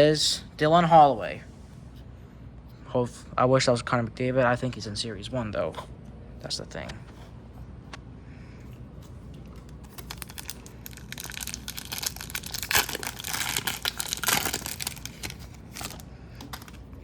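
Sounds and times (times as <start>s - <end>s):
wrapper crinkling and tearing: 9.4s - 17.0s.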